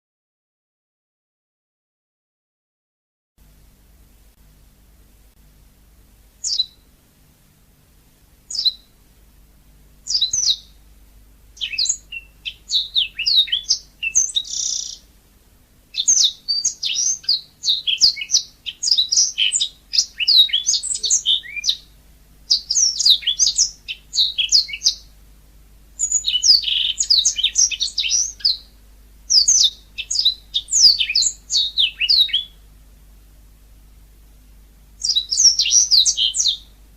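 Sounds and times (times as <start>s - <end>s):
canary singing chirps and trills: 6.4s - 6.9s, 8.5s - 9.0s, 10.0s - 10.8s, 11.5s - 15.1s, 15.9s - 25.2s, 26.0s - 32.7s, 35.0s - 36.8s.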